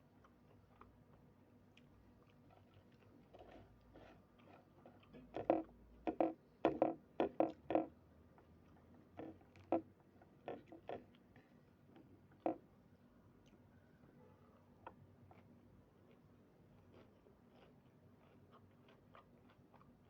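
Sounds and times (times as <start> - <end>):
person chewing and biting food: 14.8 - 20.0.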